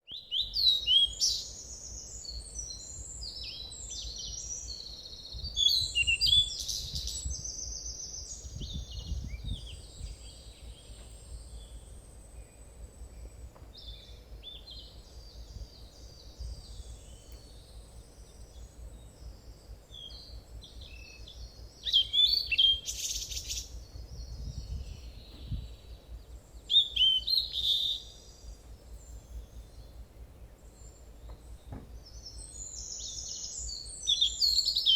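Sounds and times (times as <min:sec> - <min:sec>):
small birds chirping and singing: 0:00.0 - 0:34.9
faint low rumble: 0:22.8 - 0:26.8.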